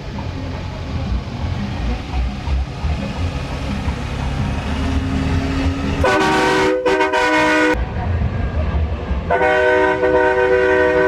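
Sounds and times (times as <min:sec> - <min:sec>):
truck engine rumbling: 0:00.0 - 0:11.0
multi-note air horn blasts: 0:05.9 - 0:07.8, 0:09.3 - 0:11.0.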